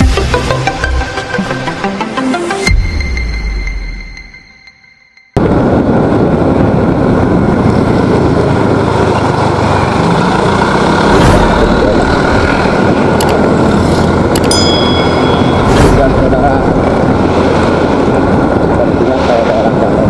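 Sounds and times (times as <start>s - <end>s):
motorcycle engine: 5.4s - 19.0s
wind and road noise: 5.4s - 20.0s.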